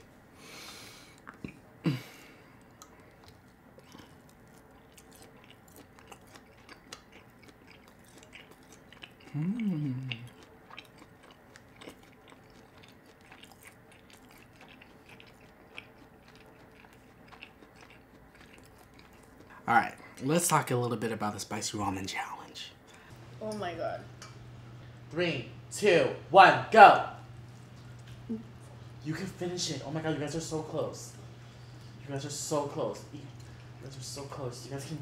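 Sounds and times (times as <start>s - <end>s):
person chewing food: 0.5s - 20.2s, 31.2s - 34.4s
person humming mmm: 9.3s - 10.4s, 28.2s - 28.6s.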